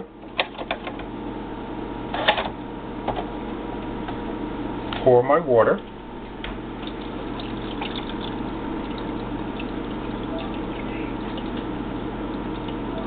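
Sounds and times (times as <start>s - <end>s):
water pouring into reservoir: 6.8s - 13.0s.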